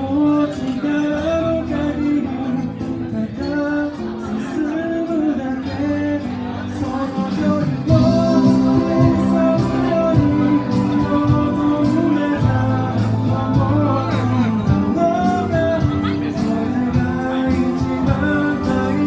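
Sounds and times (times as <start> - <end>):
person singing: 0.0 - 19.0
live band with electronic organ: 5.7 - 19.0.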